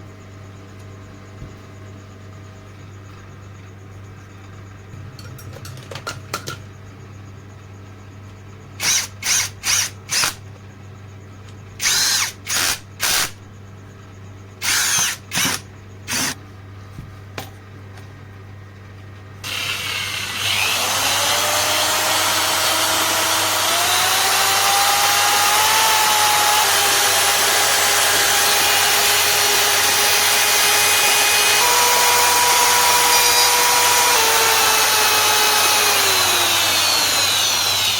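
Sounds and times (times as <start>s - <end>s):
electric power drill whining: 8.8s - 10.4s, 11.8s - 13.3s, 14.6s - 16.4s, 19.4s - 37.9s.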